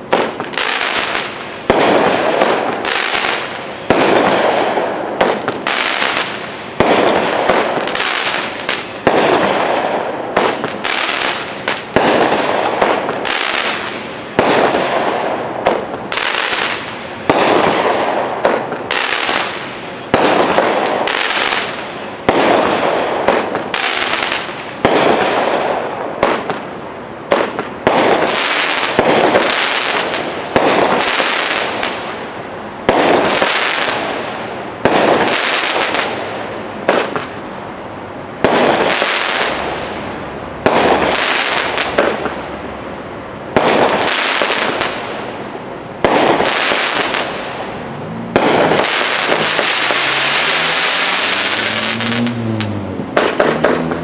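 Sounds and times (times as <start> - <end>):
firework bangs: 0.0 - 54.0
firework crackling: 0.0 - 54.0.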